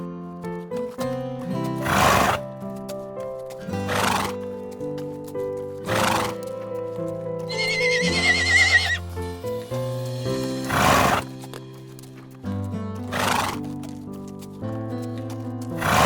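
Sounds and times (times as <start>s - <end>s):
horse whinnying: 1.9s - 2.4s, 5.9s - 6.4s, 7.5s - 9.0s, 10.7s - 11.2s, 13.1s - 13.6s, 15.8s - 16.0s.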